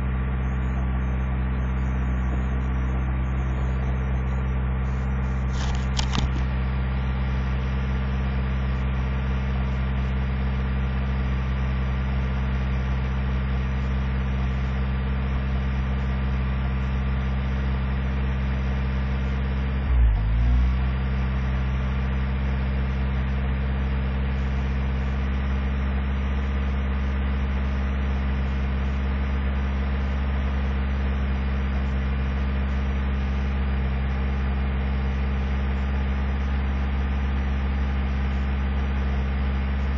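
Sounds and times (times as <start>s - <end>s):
truck engine idling: 0.0s - 8.9s.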